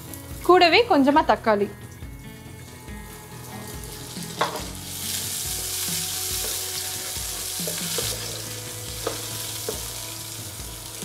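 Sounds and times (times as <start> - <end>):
onion and tomato sizzling in oil: 0.0 - 11.0
spatula tapping pan: 4.4 - 4.8, 6.3 - 10.0.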